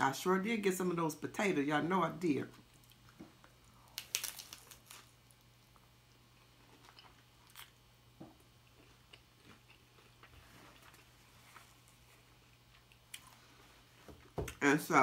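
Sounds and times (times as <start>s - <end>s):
chewing crunchy taco shell: 2.7s - 13.4s.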